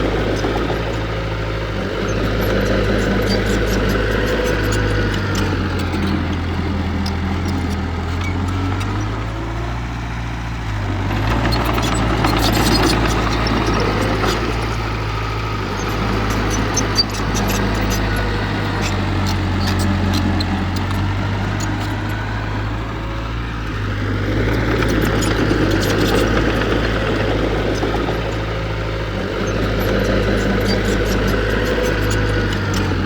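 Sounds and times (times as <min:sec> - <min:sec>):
heavy diesel engine running: 0:00.0 - 0:33.0.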